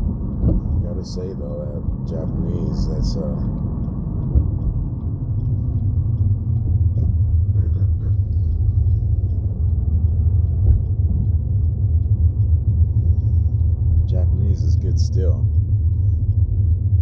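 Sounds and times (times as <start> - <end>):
car cabin road and engine rumble: 0.0 - 17.0.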